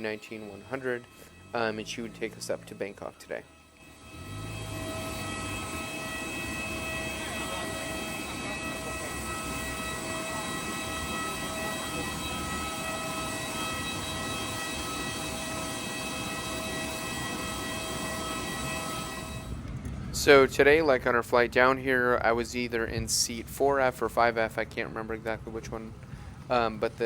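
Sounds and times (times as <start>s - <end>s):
auxiliary power unit whine: 0.0s - 27.0s.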